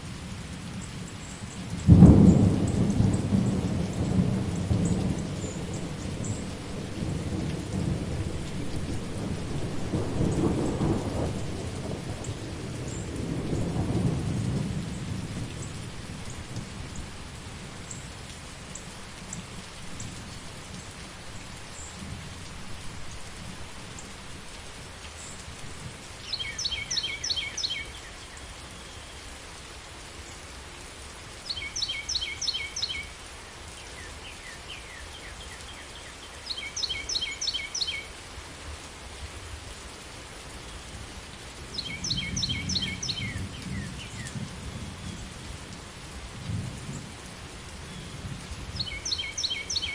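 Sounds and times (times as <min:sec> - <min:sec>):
steady rain: 0:00.0 - 0:49.9
low thunder rumble: 0:01.8 - 0:17.1.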